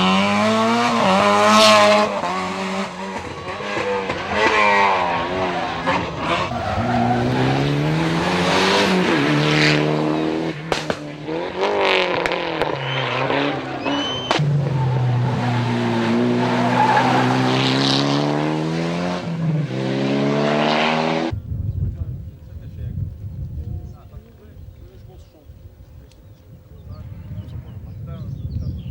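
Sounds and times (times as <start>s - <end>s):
rally car engine accelerating: 0.0s - 21.4s.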